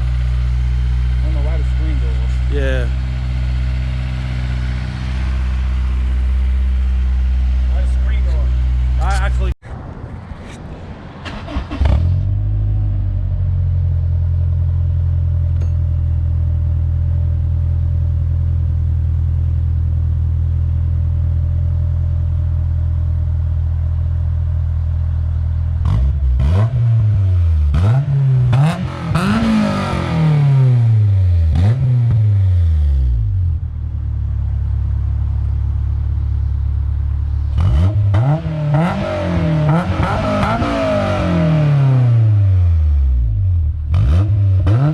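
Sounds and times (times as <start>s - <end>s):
engine revving: 0.0s - 9.5s, 11.2s - 13.3s, 25.8s - 33.5s, 37.2s - 44.9s
car engine starting and idling: 0.0s - 44.9s.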